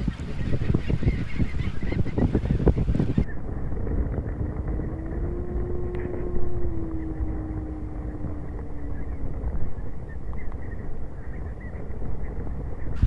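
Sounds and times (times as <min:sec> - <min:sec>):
low wind rumble: 0:00.0 - 0:13.0
distant engine droning: 0:03.1 - 0:13.0.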